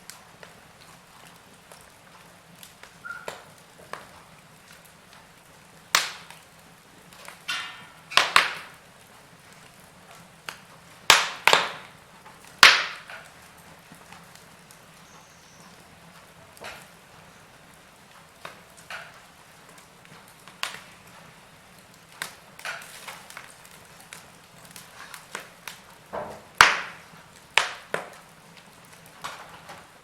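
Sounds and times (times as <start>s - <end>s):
low hiss of fire: 0.0s - 30.0s
wood fire crackling: 0.0s - 30.0s.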